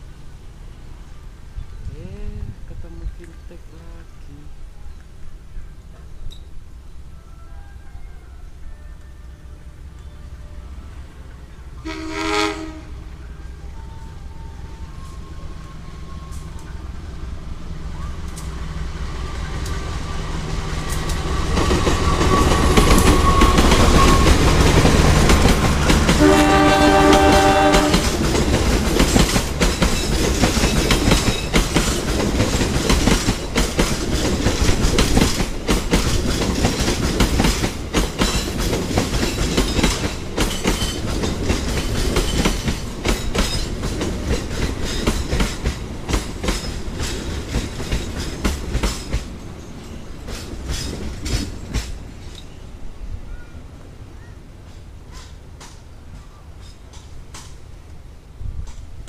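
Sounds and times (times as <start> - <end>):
locomotive rumble: 8.4 - 59.0
train horn: 11.8 - 17.0, 25.8 - 28.2
wheels clacking over rail joints: 20.4 - 52.6, 54.6 - 57.9.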